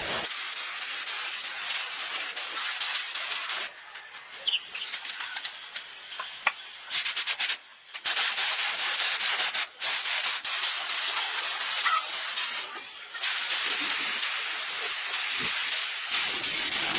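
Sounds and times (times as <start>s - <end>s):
pressurised jet hissing: 0.0s - 3.7s, 11.3s - 16.9s.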